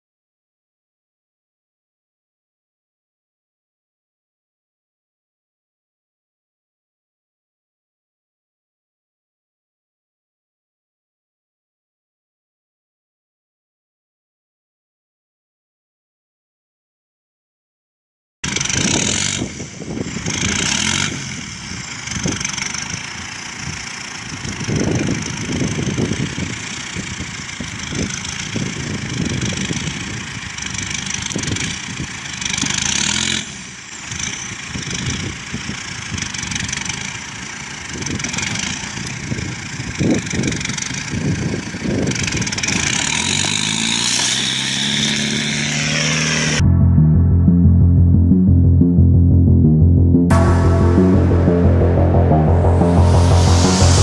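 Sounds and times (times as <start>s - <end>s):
truck engine revving: 18.5s - 35.1s, 42.4s - 46.6s.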